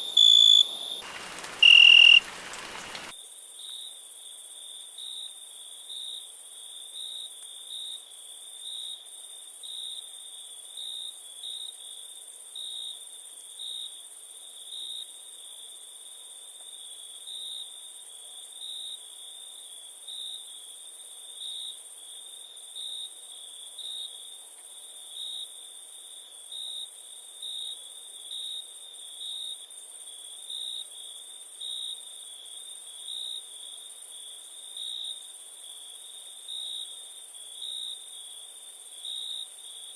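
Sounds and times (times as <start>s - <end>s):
crickets chirping: 0.0s - 3.1s
high continuous insect trill: 0.0s - 39.9s.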